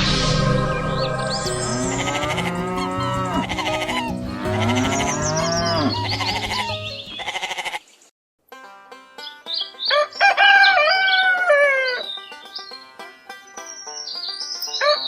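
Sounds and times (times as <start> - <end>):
background music: 0.0 - 7.4
cattle mooing: 1.5 - 7.6.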